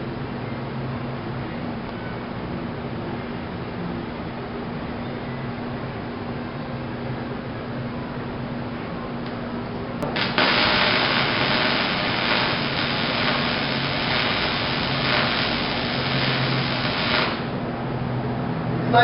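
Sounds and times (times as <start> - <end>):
welding arc crackling and sizzling: 10.0 - 17.7.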